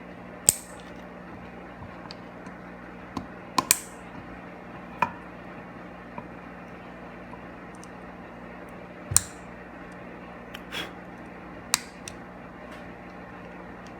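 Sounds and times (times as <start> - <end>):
steady low hum: 0.0 - 13.9
clicks and taps of small tools: 3.2 - 3.9.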